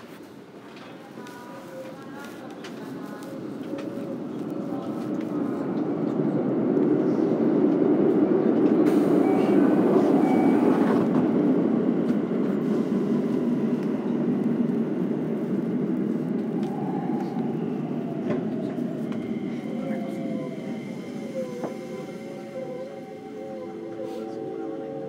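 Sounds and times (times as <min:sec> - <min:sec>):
train wheels rumbling on rail: 0:00.1 - 0:25.0.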